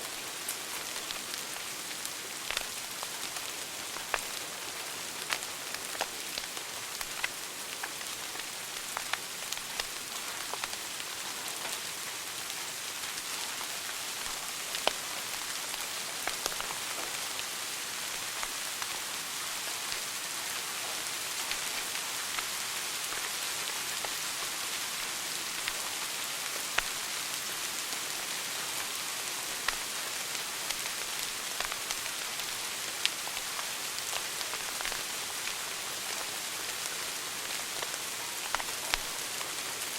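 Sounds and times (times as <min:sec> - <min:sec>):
wood fire crackling: 0:00.1 - 0:19.0, 0:26.5 - 0:27.1, 0:28.2 - 0:39.9.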